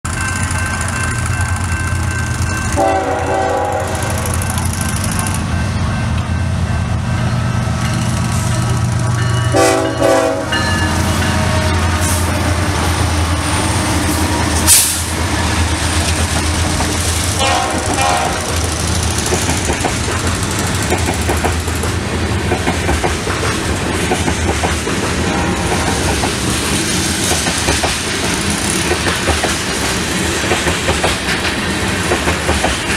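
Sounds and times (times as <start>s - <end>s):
diesel locomotives rumbling: 0.0s - 32.9s
train wheels clattering on rails: 0.1s - 32.9s
train air horn: 2.8s - 4.4s, 9.5s - 10.6s, 17.4s - 18.7s.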